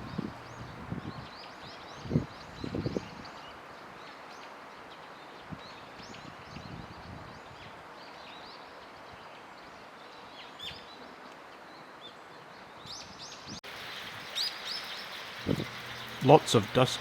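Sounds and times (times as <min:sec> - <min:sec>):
outdoor background hiss: 0:00.0 - 0:17.0
small birds chirping: 0:12.9 - 0:17.0.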